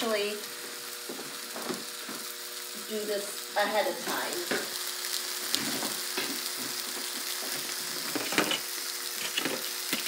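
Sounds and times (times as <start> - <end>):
chicken sizzling in butter: 0.0 - 10.0.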